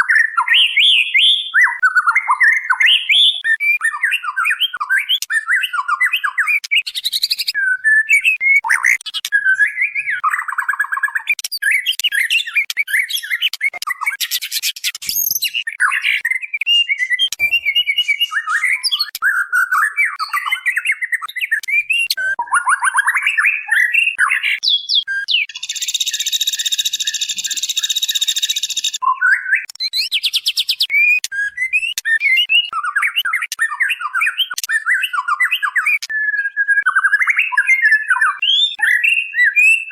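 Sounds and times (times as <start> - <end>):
bird whistling and chattering: 0.0 - 39.9.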